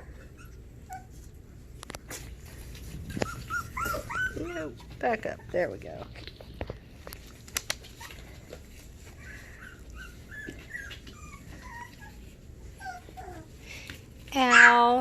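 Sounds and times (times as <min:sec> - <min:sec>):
puppies whimpering: 0:00.0 - 0:01.4, 0:03.1 - 0:05.9, 0:07.9 - 0:13.6.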